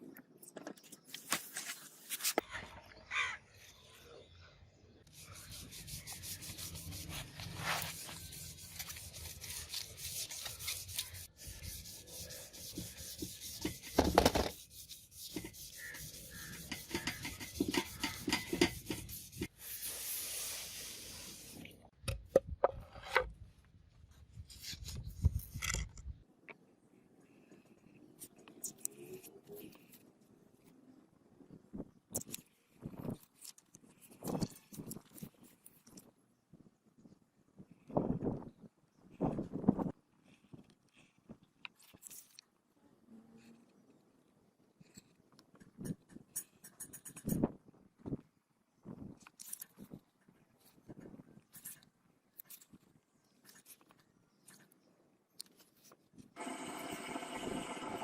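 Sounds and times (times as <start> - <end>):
hand sanding strokes on blade: 5.1 - 21.6
short hiss: 19.8 - 21.6.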